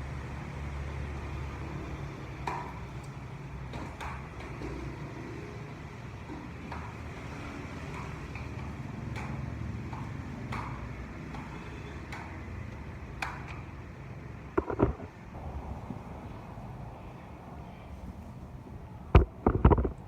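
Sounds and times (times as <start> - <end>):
steady low rumble: 14.6 - 20.0.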